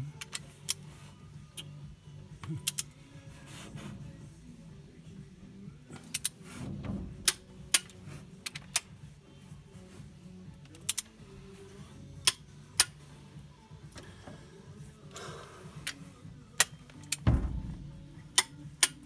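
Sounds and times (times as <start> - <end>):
steady low hum: 0.7 - 19.0
tools clinking on metal parts: 10.6 - 11.2.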